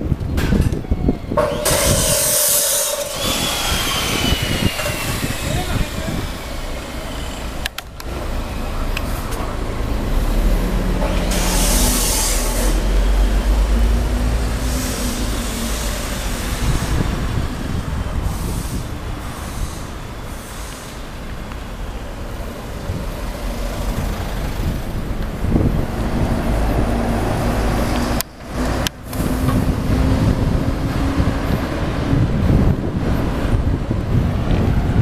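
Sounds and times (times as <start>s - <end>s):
wind on microphone: 0.0s - 7.7s, 10.3s - 21.1s, 22.3s - 35.0s
traffic noise: 0.0s - 35.0s
loud hiss: 1.4s - 7.6s, 11.2s - 13.3s, 14.3s - 21.3s.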